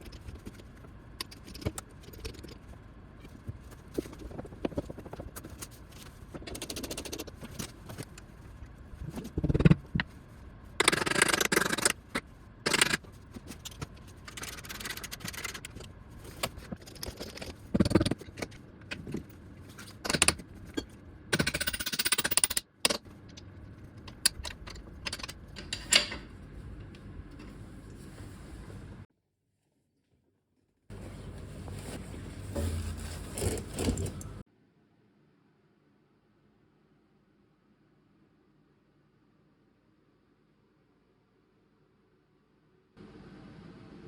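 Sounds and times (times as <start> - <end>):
metal tools clinking and rattling: 24.4 - 26.3.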